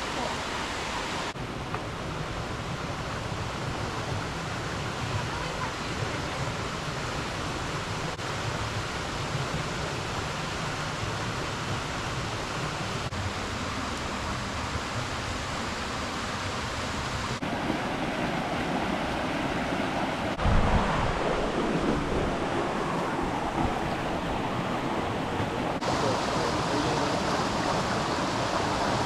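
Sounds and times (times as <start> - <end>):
waterfall roaring: 0.0 - 29.0
wind buffet on microphone: 19.7 - 25.9.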